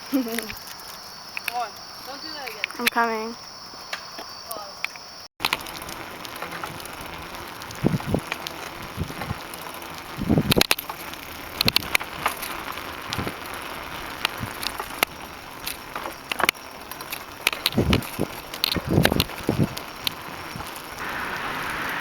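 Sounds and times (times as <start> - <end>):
bicycle tyre and wind noise: 5.4 - 22.0.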